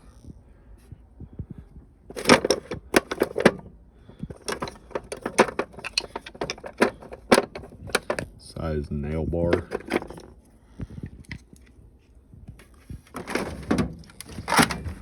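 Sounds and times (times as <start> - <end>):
metal hand tools clattering: 2.1 - 3.7, 4.3 - 8.2, 9.5 - 10.3, 13.2 - 15.0.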